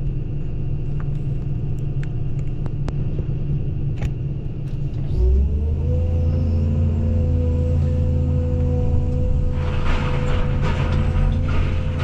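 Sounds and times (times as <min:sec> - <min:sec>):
excavator diesel engine running: 0:00.0 - 0:12.0
sharp knocks and cracks: 0:09.8 - 0:12.0.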